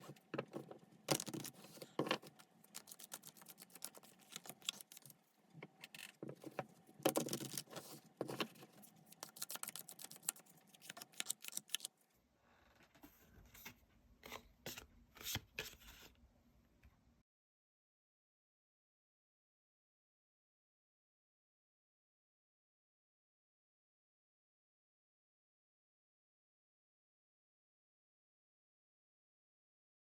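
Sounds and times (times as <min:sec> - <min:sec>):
cards shuffling: 0:01.1 - 0:05.1, 0:07.1 - 0:11.9.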